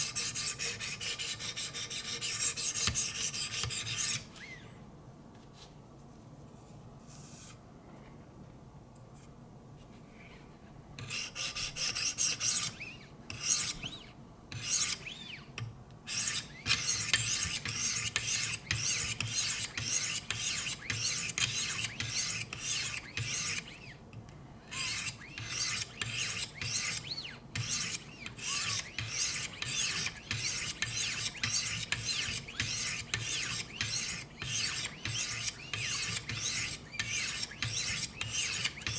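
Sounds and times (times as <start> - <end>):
sharpening stone scraping knife: 27.6 - 38.9.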